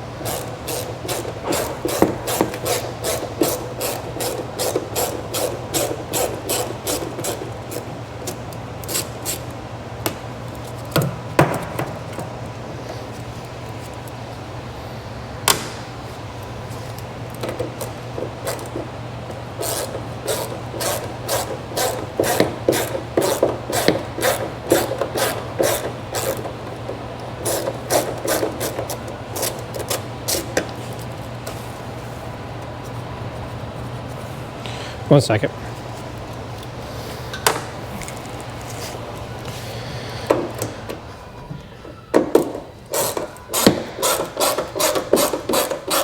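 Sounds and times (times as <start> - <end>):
rhythmic hand tool strokes: 0.2 - 7.8, 19.6 - 26.6, 27.4 - 30.5, 42.9 - 46.0.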